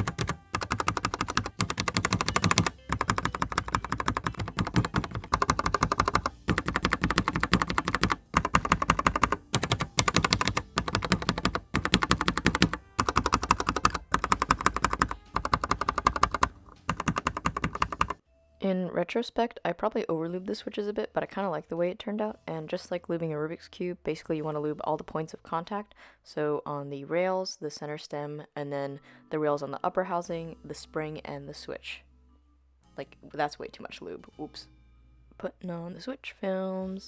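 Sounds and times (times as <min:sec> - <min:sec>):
mechanical keyboard keystrokes clacking: 0:00.0 - 0:18.2.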